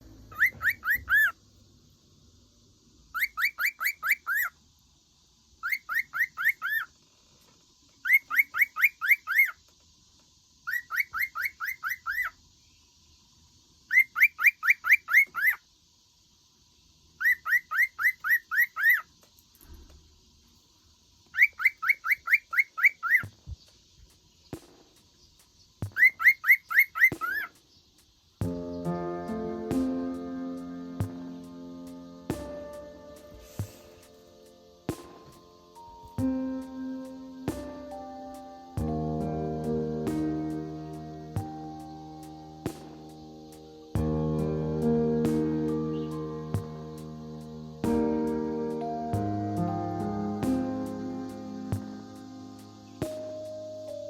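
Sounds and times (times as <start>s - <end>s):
cockatiel chirping: 0.3s - 1.4s, 3.1s - 4.5s, 5.6s - 6.9s, 8.0s - 9.6s, 10.7s - 12.4s, 21.4s - 23.4s, 25.8s - 27.6s.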